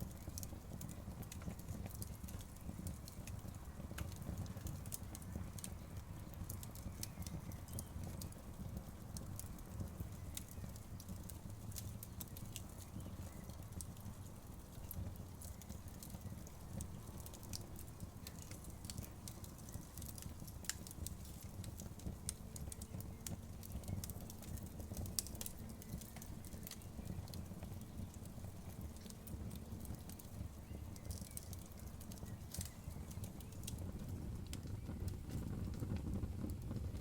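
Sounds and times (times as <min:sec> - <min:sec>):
campfire crackling: 0:00.0 - 0:37.0
low fire rumble: 0:00.0 - 0:37.0
sharp campfire crack: 0:00.0 - 0:37.0.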